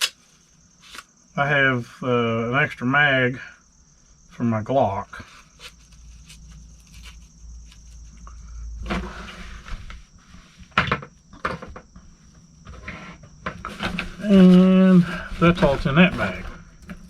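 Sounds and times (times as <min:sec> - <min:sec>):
bag rustling: 0:12.6 - 0:17.0.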